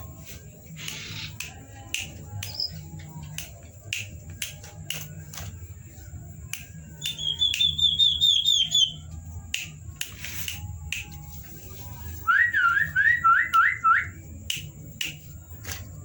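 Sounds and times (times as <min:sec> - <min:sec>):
bird whistling repeated notes: 0:06.9 - 0:09.1, 0:12.3 - 0:14.2.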